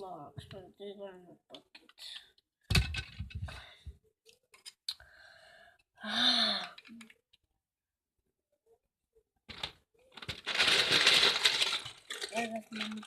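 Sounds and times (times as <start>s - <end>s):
plastic bricks clicking and rattling: 2.7s - 3.4s, 6.5s - 7.2s, 9.5s - 13.0s.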